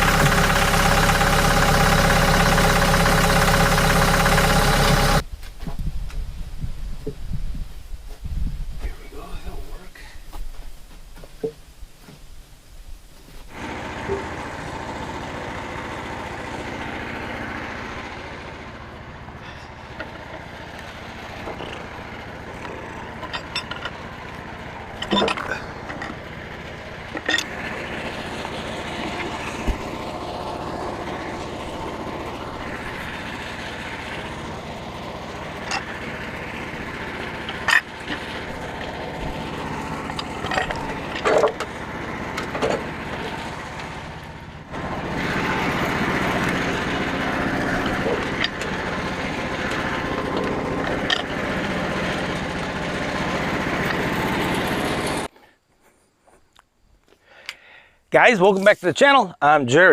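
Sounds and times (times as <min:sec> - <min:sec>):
engine running steadily: 0:00.0 - 0:05.6, 0:13.4 - 0:55.3
machinery clanks and knocks: 0:19.4 - 0:55.3.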